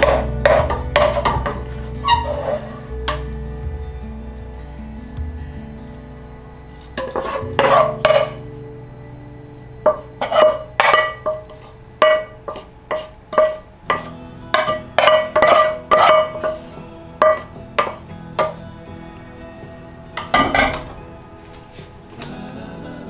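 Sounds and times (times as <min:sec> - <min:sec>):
background music: 0:00.0 - 0:23.0
cutlery clinking against a dish: 0:09.9 - 0:16.6, 0:17.2 - 0:18.6.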